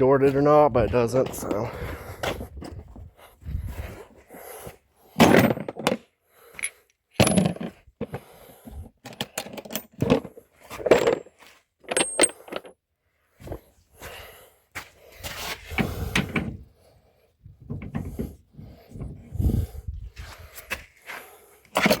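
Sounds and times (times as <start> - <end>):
small metal parts clinking: 10.8 - 12.8.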